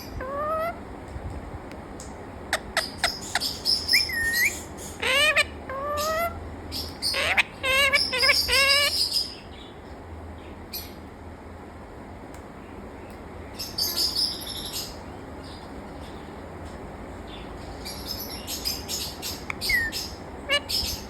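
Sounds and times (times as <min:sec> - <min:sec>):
parrot calling: 0:00.0 - 0:00.8, 0:02.5 - 0:09.4, 0:17.9 - 0:21.0.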